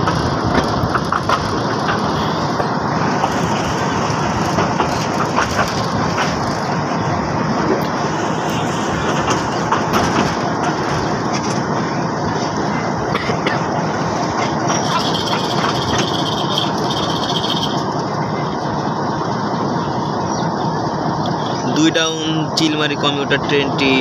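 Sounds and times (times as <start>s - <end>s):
train wheels knocking: 0.0s - 6.9s, 14.3s - 17.9s
train rumble and rattle: 0.0s - 24.0s
high thin squeal: 14.7s - 17.9s.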